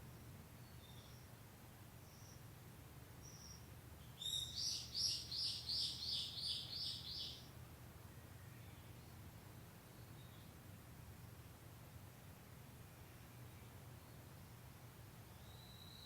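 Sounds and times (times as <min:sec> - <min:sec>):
faint bird chirps: 0:00.2 - 0:01.4, 0:02.0 - 0:02.5, 0:03.2 - 0:07.5, 0:15.2 - 0:16.0.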